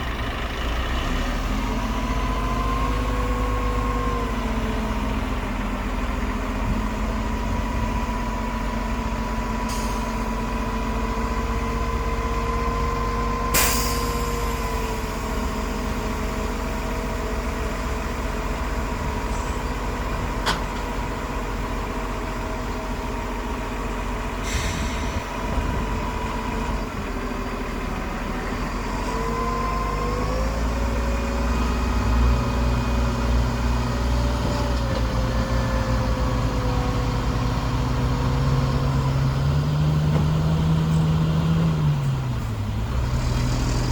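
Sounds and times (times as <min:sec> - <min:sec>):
heavy diesel machinery running: 0:00.0 - 0:43.9
short hisses: 0:24.4 - 0:25.3.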